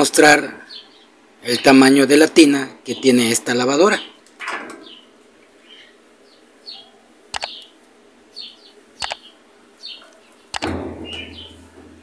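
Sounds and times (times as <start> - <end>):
small bird chirping: 4.8 - 11.8.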